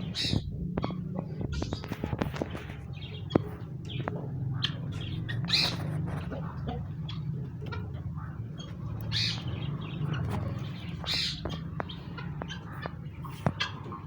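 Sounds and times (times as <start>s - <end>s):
poultry calling harshly: 0.0s - 14.0s.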